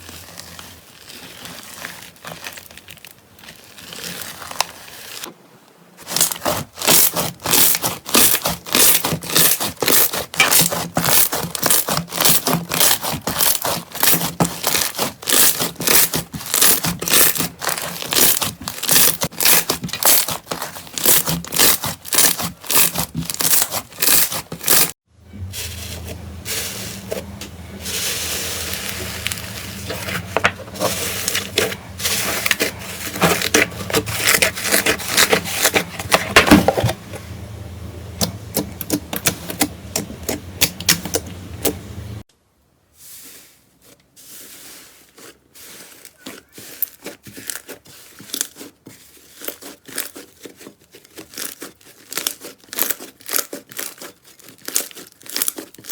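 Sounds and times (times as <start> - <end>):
slime squeezed crackling: 6.1 - 24.9, 26.4 - 36.0, 46.0 - 55.9
low hum: 25.1 - 34.3, 35.9 - 42.2.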